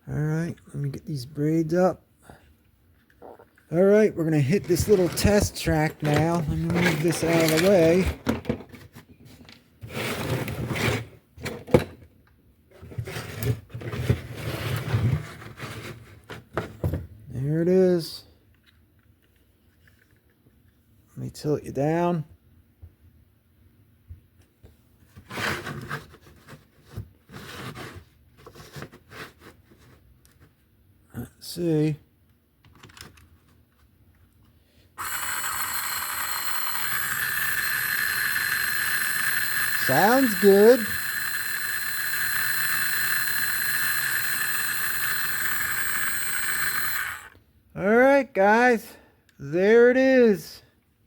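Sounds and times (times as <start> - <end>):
slot car motor buzzing: 35.0 - 47.4.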